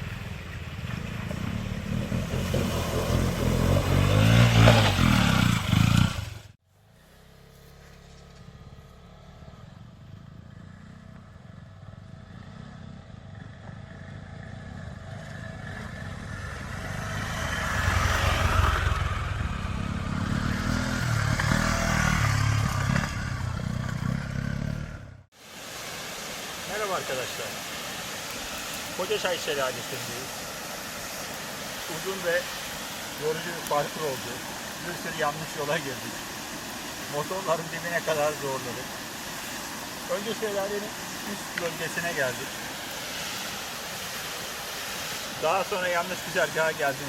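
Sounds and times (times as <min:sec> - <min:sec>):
motorcycle engines running: 0:00.0 - 0:25.3.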